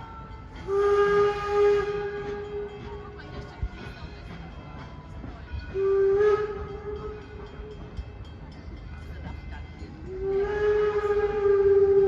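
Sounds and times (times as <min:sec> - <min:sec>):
steam locomotive whistle blowing: 0:00.0 - 0:03.1, 0:05.5 - 0:08.0, 0:10.0 - 0:12.0
low rumble of train: 0:00.0 - 0:12.0.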